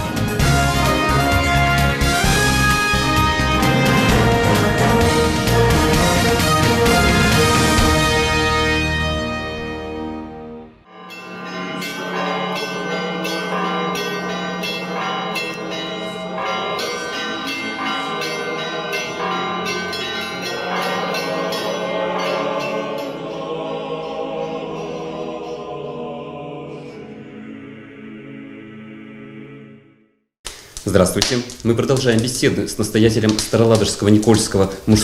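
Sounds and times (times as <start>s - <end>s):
church bells ringing: 0.3s - 26.1s.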